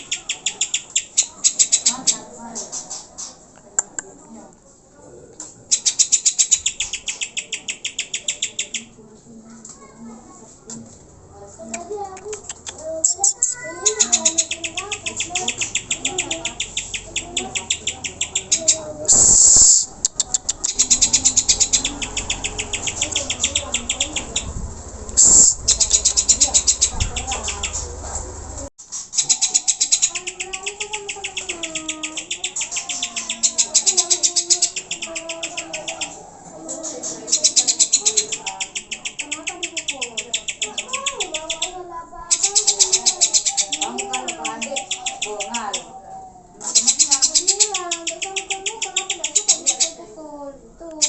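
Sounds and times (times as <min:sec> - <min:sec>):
bird chattering high notes: 0:00.0 - 0:02.2, 0:05.7 - 0:08.9, 0:12.3 - 0:24.6, 0:25.2 - 0:28.0, 0:29.0 - 0:45.9, 0:46.6 - 0:50.0
harsh bird rasp: 0:00.0 - 0:03.5, 0:11.8 - 0:20.0, 0:28.8 - 0:46.0.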